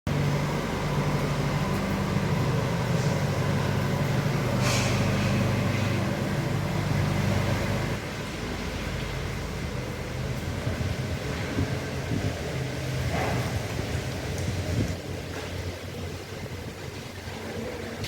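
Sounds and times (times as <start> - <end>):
vehicle engine humming: 0.0 - 18.0
brief hiss: 4.6 - 5.4.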